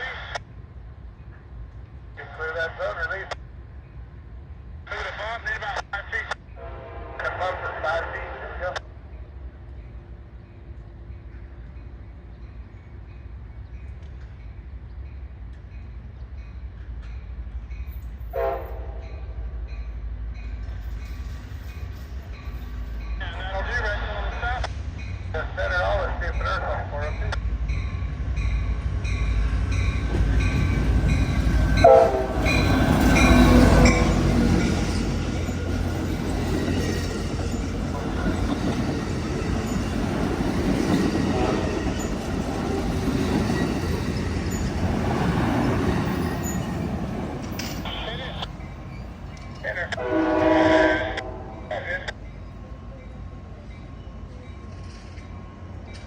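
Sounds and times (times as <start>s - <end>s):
passenger train rumbling: 0.0s - 56.0s
train horn blast: 6.6s - 7.6s, 18.3s - 19.4s, 31.6s - 34.7s, 41.2s - 41.9s, 49.9s - 52.1s.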